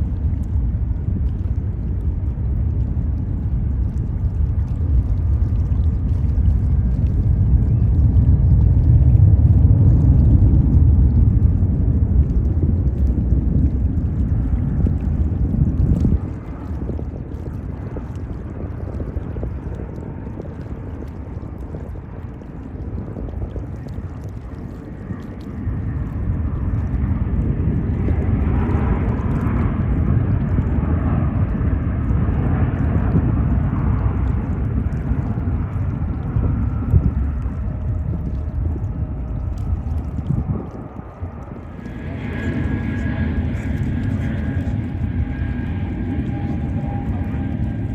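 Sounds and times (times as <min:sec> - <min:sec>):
jet engines rumbling: 0:00.0 - 0:47.9
faint engine whine: 0:23.4 - 0:47.9.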